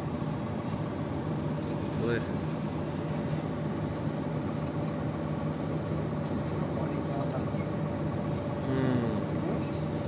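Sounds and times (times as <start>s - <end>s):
train rumbling on track: 0.0s - 10.0s.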